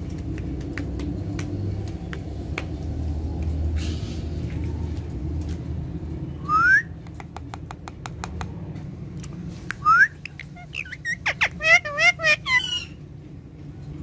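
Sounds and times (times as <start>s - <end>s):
parrot whistling: 9.8s - 13.0s.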